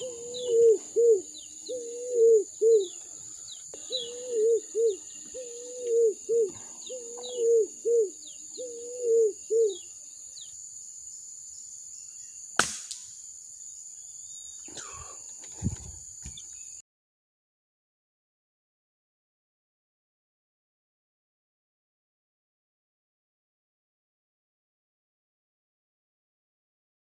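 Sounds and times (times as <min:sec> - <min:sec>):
dove cooing: 0:00.0 - 0:09.9
air rifle shot: 0:12.6 - 0:13.1
faint knocks and rustles: 0:15.3 - 0:16.5.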